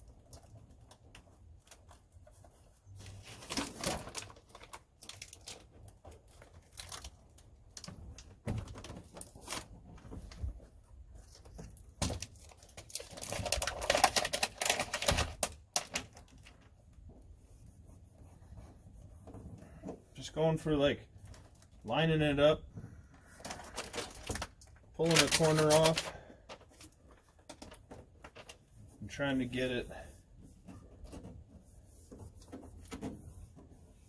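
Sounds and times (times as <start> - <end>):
sound deadener sheets crinkling: 0.0 - 22.6, 23.2 - 34.0
crackling and tearing: 3.0 - 8.0, 11.2 - 16.7, 23.3 - 28.6
backing paper peeling: 23.4 - 26.1.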